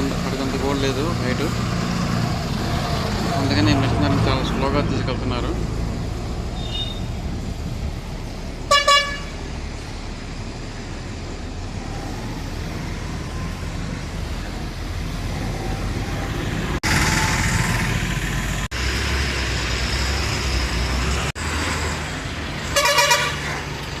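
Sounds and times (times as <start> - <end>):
heavy vehicle engines running: 0.0 - 24.0
vehicle horn blast: 8.7 - 9.4, 22.8 - 23.4.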